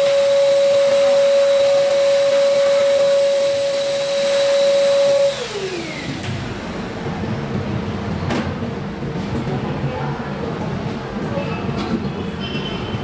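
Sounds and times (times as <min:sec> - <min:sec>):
electric motor whine winding down: 0:00.0 - 0:06.8.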